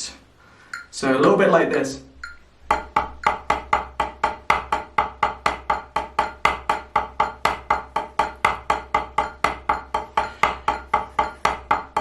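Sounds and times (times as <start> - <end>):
drumsticks playing a rudiment: 0.7 - 3.8.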